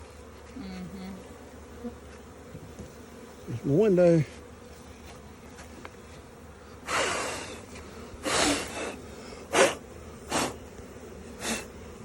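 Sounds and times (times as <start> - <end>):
person blowing short puffs: 6.8 - 7.6, 8.2 - 10.6, 11.4 - 11.8.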